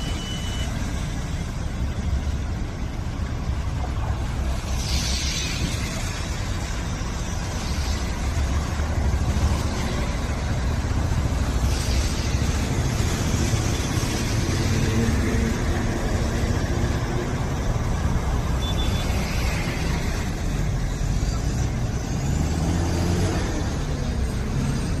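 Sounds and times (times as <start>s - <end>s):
vehicle engines running: 0.0s - 25.0s
tyres hissing in water: 4.4s - 10.1s, 11.4s - 16.0s.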